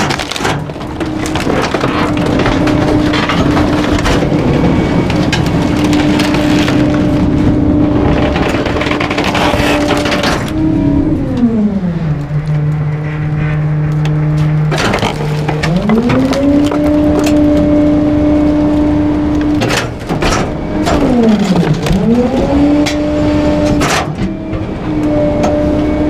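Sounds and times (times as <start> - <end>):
loud crunch: 0.0 - 10.6, 12.8 - 23.0
items cracking and splintering: 0.0 - 11.5, 14.0 - 24.3
garbage truck engine revving: 0.0 - 26.0.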